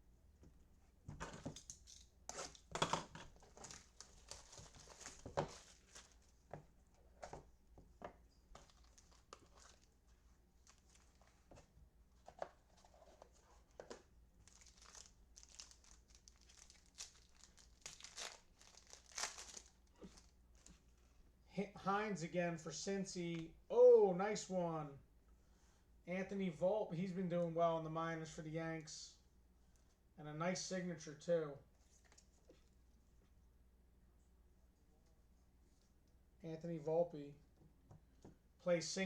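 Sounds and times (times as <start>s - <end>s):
plastic crinkling and tearing: 3.3s - 6.2s, 8.6s - 10.0s, 14.4s - 20.8s.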